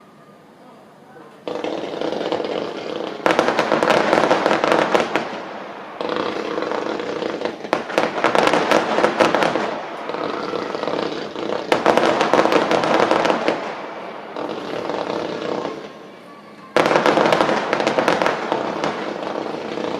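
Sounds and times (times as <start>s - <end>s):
fireworks crackling: 1.3s - 19.9s.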